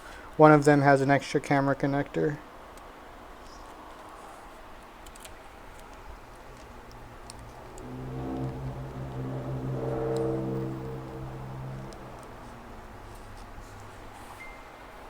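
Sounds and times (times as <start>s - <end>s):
low steady hum: 6.1s - 14.7s.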